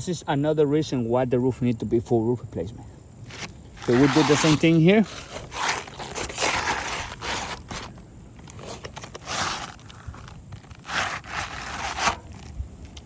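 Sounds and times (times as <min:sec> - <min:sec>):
footsteps scraping on shingle roof: 0:03.2 - 0:13.0.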